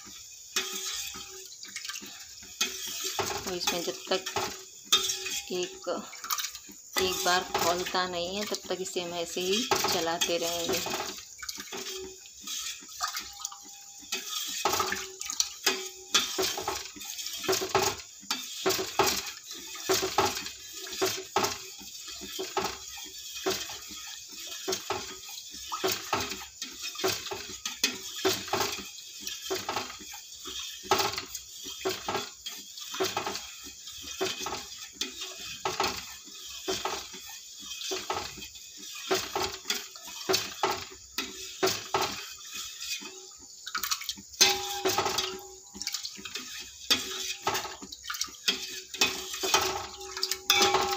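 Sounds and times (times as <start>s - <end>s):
spoon scraping a pot: 0.0s - 50.9s
water sloshing: 36.6s - 50.9s.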